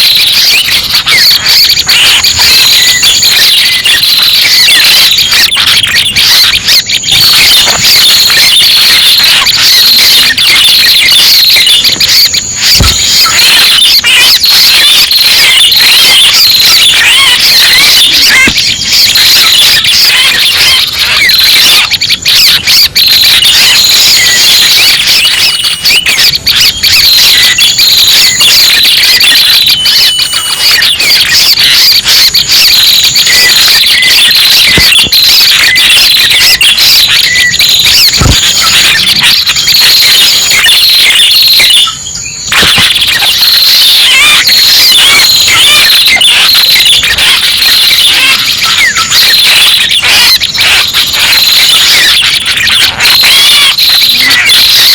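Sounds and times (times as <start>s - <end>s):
bird chirping and trilling: 4.9s - 10.6s.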